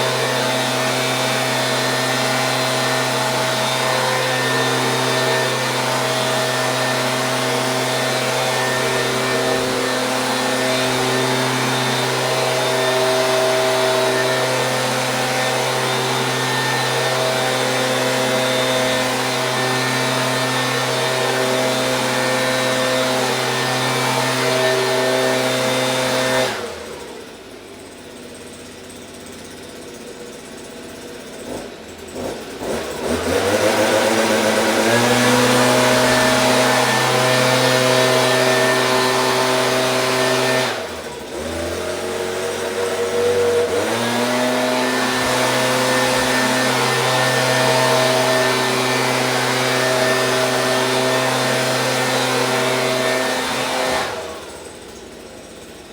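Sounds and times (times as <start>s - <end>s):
leaf blower engine running: 0.0s - 55.9s.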